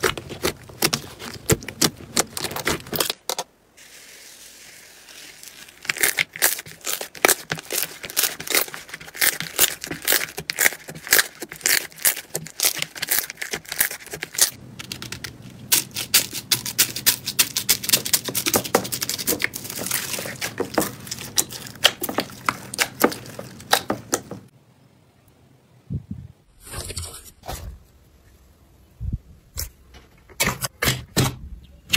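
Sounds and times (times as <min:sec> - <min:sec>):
slime crackling and popping: 0:05.0 - 0:24.4.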